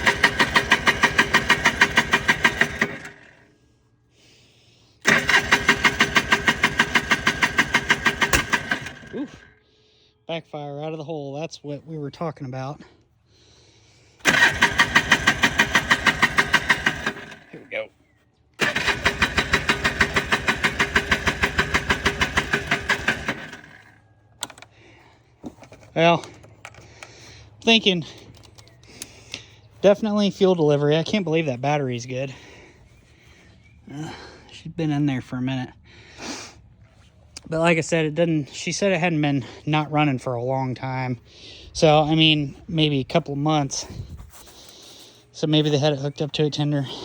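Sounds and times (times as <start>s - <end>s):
electric starter cranking engine: 0.0s - 3.5s, 5.0s - 9.6s, 14.2s - 17.7s, 18.6s - 25.0s.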